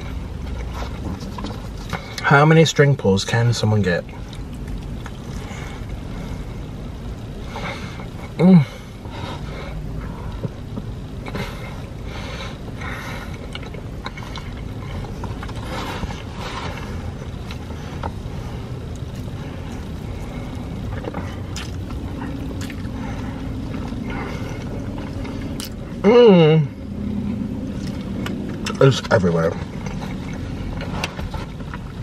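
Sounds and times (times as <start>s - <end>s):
low car cabin rumble: 0.0s - 32.0s
wet chewing mouth sounds: 4.0s - 6.2s, 12.6s - 26.0s, 27.7s - 28.8s, 29.5s - 32.0s.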